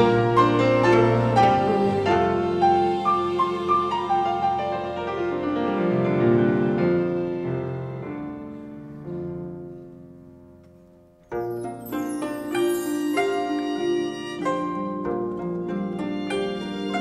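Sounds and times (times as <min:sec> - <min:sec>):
chamber ensemble music: 0:00.0 - 0:17.0
piano-like notes: 0:00.0 - 0:17.0.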